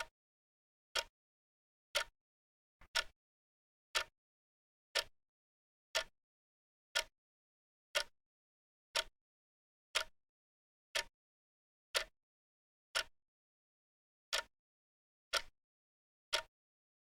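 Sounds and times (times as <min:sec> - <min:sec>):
clock ticking: 0:01.9 - 0:02.1, 0:02.8 - 0:03.2, 0:03.9 - 0:04.1, 0:05.9 - 0:06.1, 0:08.9 - 0:09.1, 0:11.9 - 0:12.2, 0:12.9 - 0:13.1, 0:14.3 - 0:14.5, 0:15.3 - 0:15.5, 0:16.3 - 0:16.5.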